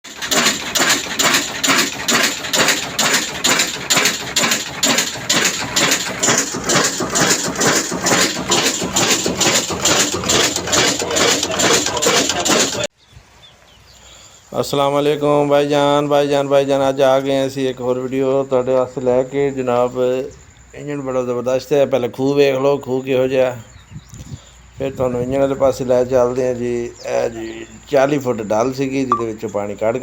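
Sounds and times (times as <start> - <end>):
stationary diesel engine knocking: 0.1 - 12.9.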